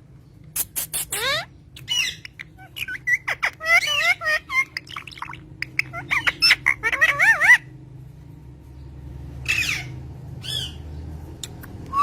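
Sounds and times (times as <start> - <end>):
parrot chirping and warbling: 0.5 - 7.8, 9.3 - 12.0
parrot squawks: 0.6 - 7.7, 9.4 - 10.8.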